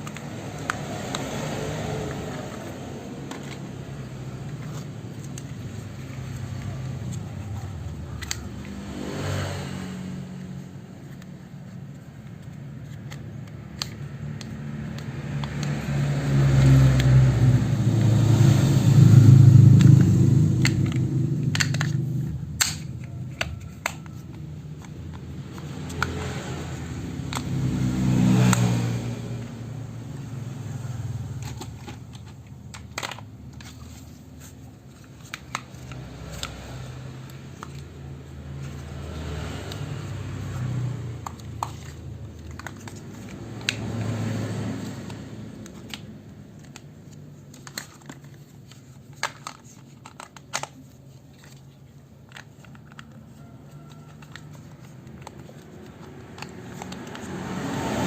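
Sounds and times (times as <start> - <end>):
plastic clicks and taps: 19.8 - 26.6, 41.2 - 44.2, 53.9 - 57.4.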